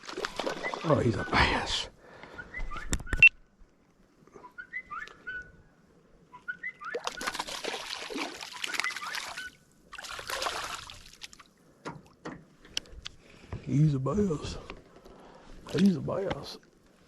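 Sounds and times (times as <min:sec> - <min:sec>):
fish splashing and thrashing: 0:00.0 - 0:01.3, 0:06.9 - 0:12.2
bird chirps: 0:04.4 - 0:05.6, 0:06.3 - 0:07.4, 0:08.5 - 0:09.6.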